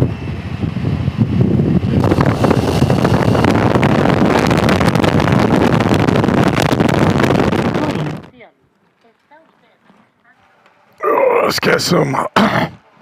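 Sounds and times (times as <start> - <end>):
motorcycle engine: 0.0 - 8.3
wind rushing over microphone: 0.0 - 8.4
road noise: 0.0 - 13.0.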